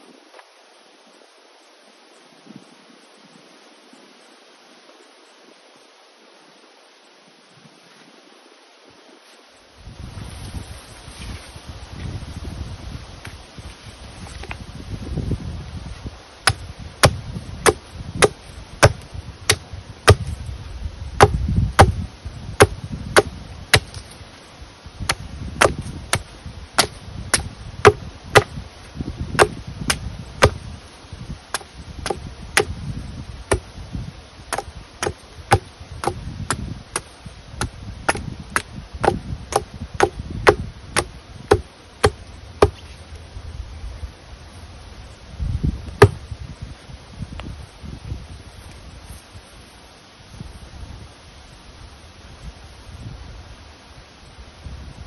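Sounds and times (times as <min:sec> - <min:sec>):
wood chopping strikes: 0:16.4 - 0:20.4, 0:21.2 - 0:22.0, 0:22.6 - 0:24.2, 0:25.0 - 0:28.6, 0:29.3 - 0:30.6, 0:31.5 - 0:32.8, 0:33.5 - 0:33.7, 0:34.5 - 0:43.0, 0:46.0 - 0:46.2.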